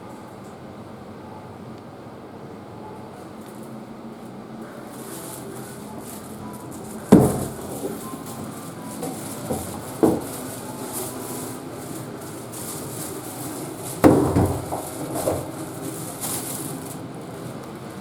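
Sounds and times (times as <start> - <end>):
steady hiss: 3.6 - 18.0.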